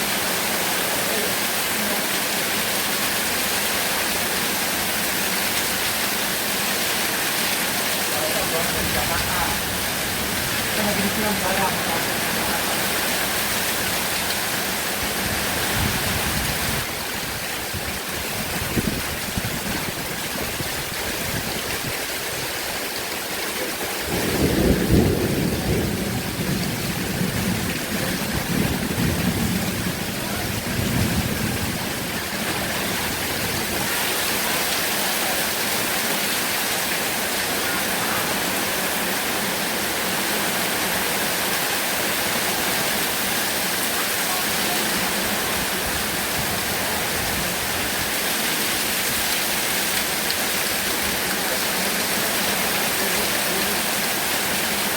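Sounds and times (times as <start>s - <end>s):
heavy rain falling: 0.0s - 54.9s
rumble of thunder: 24.1s - 33.8s.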